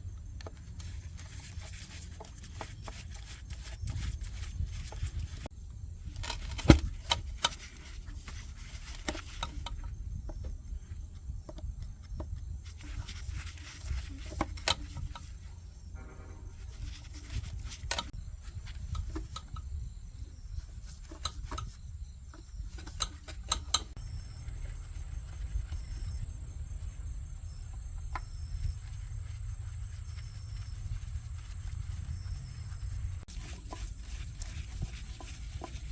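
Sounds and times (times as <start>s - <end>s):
insects chirring: 0.0s - 35.9s
sharp clicks and knocks: 6.2s - 10.6s, 20.8s - 24.0s.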